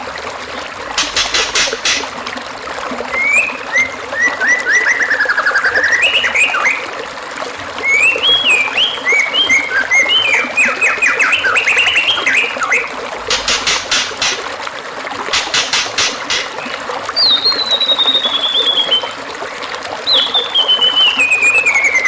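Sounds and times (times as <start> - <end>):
trickling water: 0.0 - 22.0
songbird whistling: 3.1 - 6.9, 7.8 - 12.9, 16.3 - 19.2, 20.0 - 22.0.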